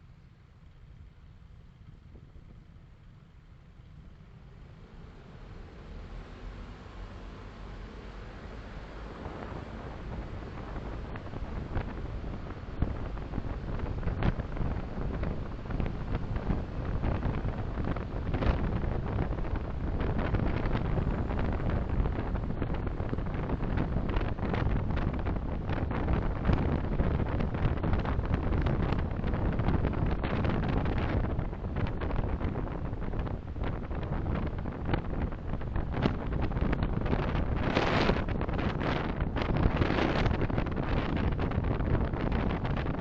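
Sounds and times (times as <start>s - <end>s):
car road and wind noise: 0.0s - 43.0s.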